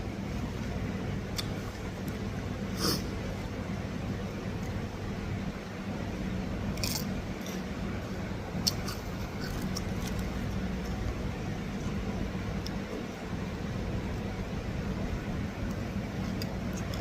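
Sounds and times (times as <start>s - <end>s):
low background hum: 0.0s - 17.0s
soft chewing: 6.8s - 13.3s, 15.6s - 17.0s.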